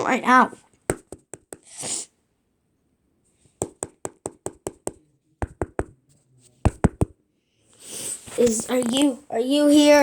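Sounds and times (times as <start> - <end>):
sharp knocks: 6.7 - 7.1.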